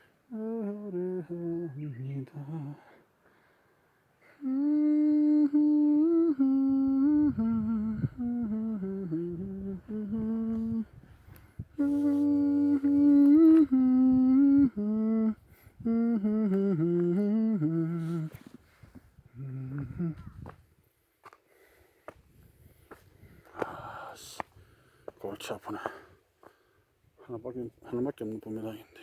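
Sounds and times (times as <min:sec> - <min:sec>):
person humming a tune: 0:00.3 - 0:03.0, 0:04.2 - 0:11.0, 0:11.6 - 0:20.6.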